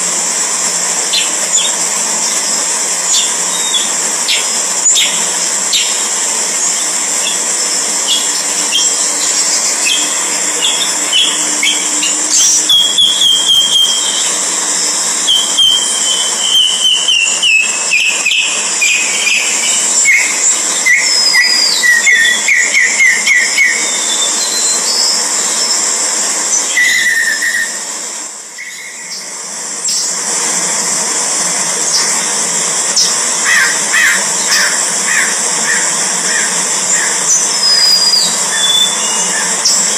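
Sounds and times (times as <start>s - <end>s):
steady high hiss: 0.0s - 39.9s
birds whistling calls: 8.1s - 14.6s, 15.2s - 25.8s, 26.5s - 27.9s, 28.6s - 30.1s, 33.0s - 39.9s.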